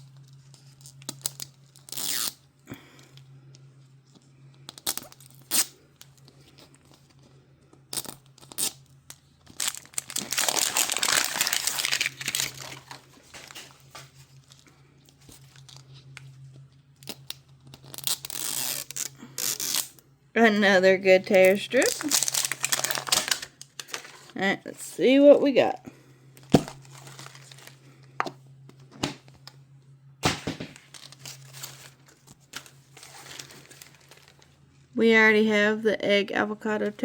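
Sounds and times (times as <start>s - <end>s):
plastic wrapper crinkling: 0.1s - 2.3s, 8.0s - 20.0s, 21.2s - 24.4s, 26.4s - 28.2s, 30.2s - 34.6s
plastic wrapper tearing: 0.2s - 2.4s, 4.7s - 6.3s, 7.9s - 14.6s, 17.0s - 20.0s, 21.3s - 24.4s, 26.4s - 27.8s, 30.2s - 34.5s.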